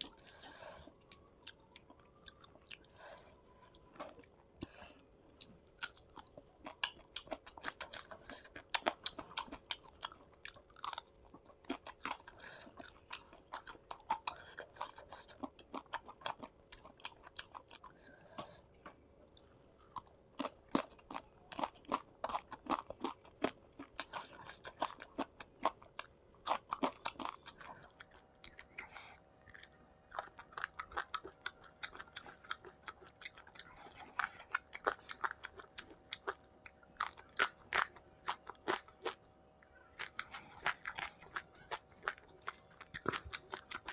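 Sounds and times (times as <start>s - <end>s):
person chewing crunchy food: 0.0s - 43.9s.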